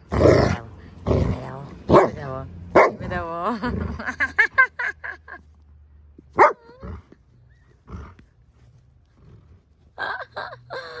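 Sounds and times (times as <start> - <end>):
dog barking: 1.9 - 3.1, 6.4 - 6.7.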